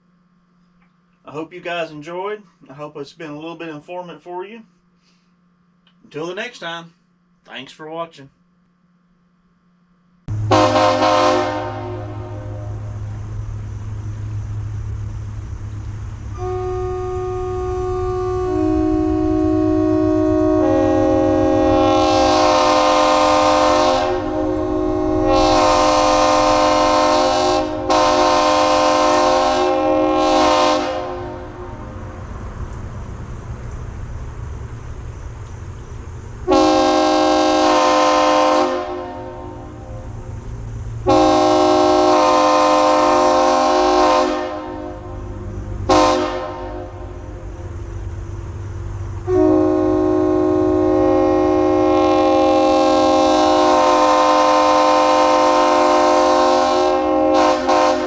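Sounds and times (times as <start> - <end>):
train horn blasts: 10.3 - 14.5, 16.2 - 32.7, 36.4 - 58.0.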